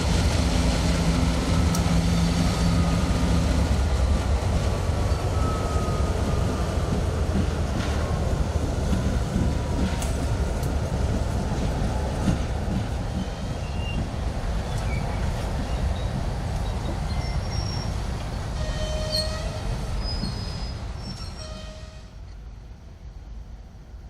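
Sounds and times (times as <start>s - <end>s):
train rumbling past: 0.0s - 24.0s
train wheel squeals: 1.5s - 4.2s, 5.0s - 7.3s, 13.1s - 22.1s.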